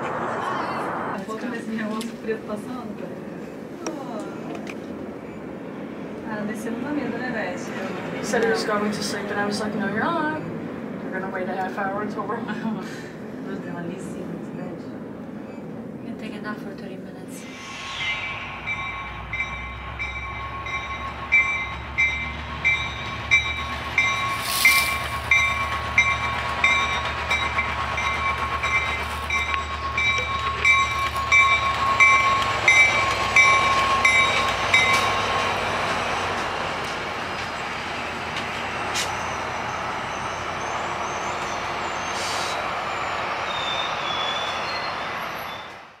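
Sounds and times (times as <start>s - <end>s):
low train rumble: 0.0s - 46.0s
rail noise: 0.0s - 46.0s
steady tone: 17.4s - 35.9s
bell ringing: 17.6s - 35.2s.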